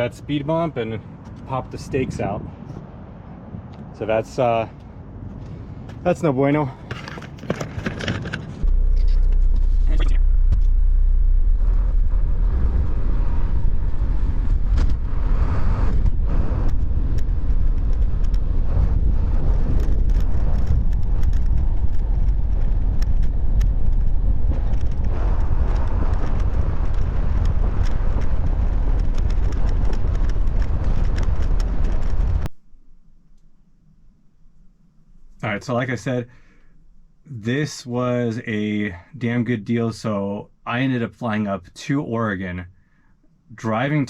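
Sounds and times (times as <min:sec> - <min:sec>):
truck engine rumbling: 0:04.7 - 0:32.5
small rattles and knocks: 0:06.8 - 0:08.6.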